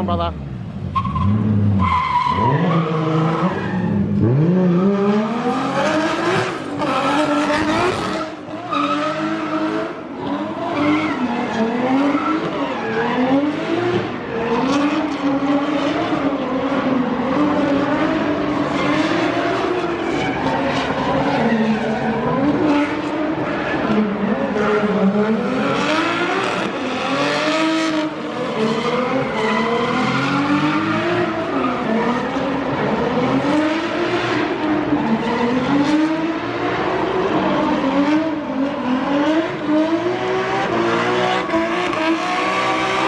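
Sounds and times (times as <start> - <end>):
car engine revving: 0.7 - 43.0
tyres squealing and skidding: 0.9 - 17.3, 18.0 - 36.1.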